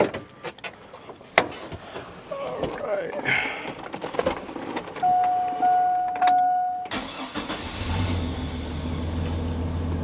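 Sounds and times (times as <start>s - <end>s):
car electronic warning tone: 5.0s - 7.0s
car engine starting and idling: 6.3s - 10.0s.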